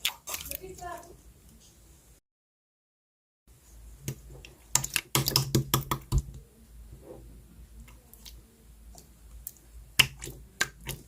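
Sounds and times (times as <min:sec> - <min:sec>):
slime squished by hand: 0:09.0 - 0:11.0.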